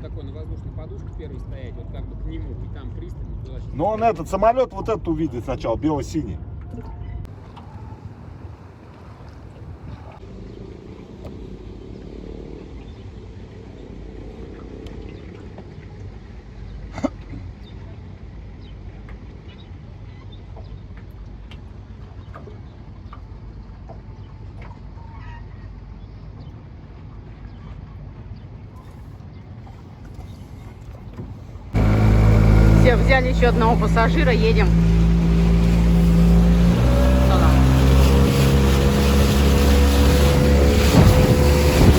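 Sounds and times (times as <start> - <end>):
outboard motor rumbling: 0.0 - 5.6, 6.4 - 41.9.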